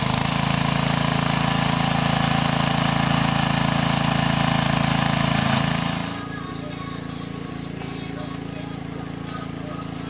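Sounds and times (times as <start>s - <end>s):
engine running with putter: 0.0s - 10.0s.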